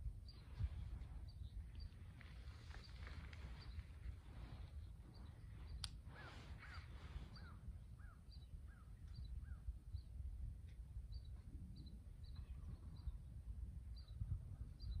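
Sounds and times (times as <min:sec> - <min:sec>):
bird rising and falling calls: 0:01.8 - 0:09.6.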